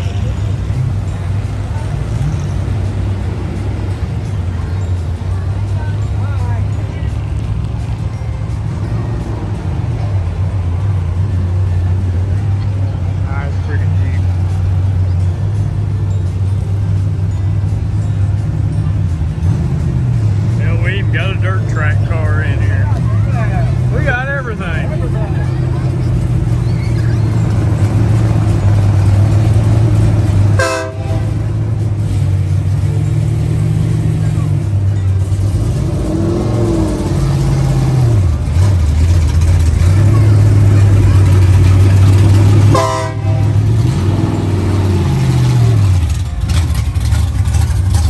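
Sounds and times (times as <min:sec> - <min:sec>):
car engine running: 0:00.0 - 0:48.0
car horn blast: 0:30.5 - 0:31.5, 0:42.6 - 0:44.0
short horn toot: 0:42.7 - 0:43.6.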